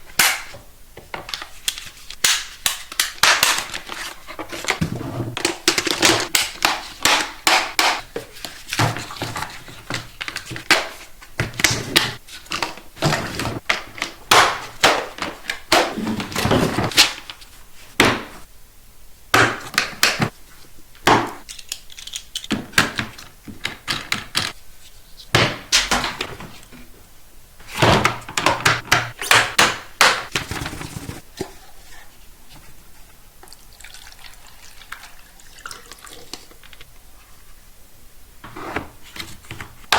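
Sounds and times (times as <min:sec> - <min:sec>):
plastic track pieces clicking: 0:21.5 - 0:22.5.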